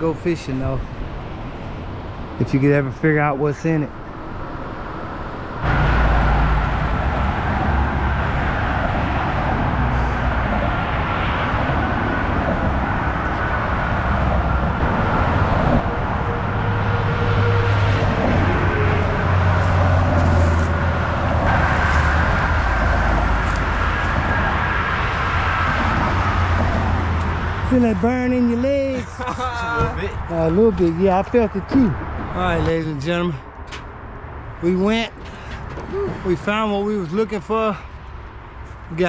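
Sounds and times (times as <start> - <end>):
road traffic rumble: 0.0 - 39.0
faint tyre whine: 1.2 - 29.3.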